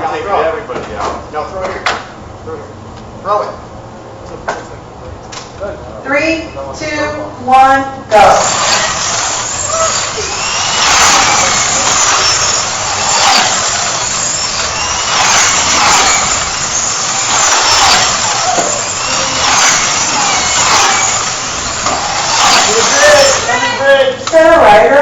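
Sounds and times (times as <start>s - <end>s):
slot car electric motors whining: 8.1s - 24.7s.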